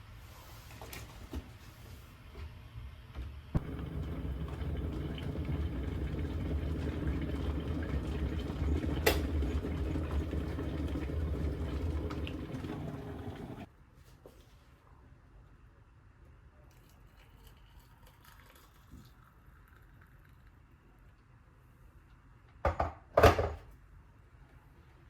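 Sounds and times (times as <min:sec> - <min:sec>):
kitchen appliance humming: 0:03.6 - 0:13.7.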